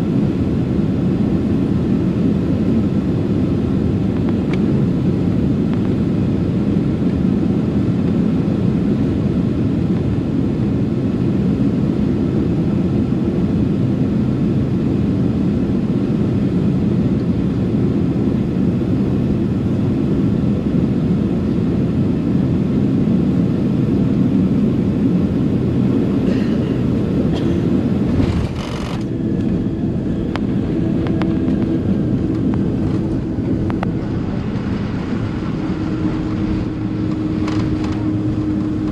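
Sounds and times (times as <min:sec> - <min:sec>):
jet engine and airflow in cabin: 0:00.0 - 0:38.9
steady hum: 0:22.5 - 0:38.9.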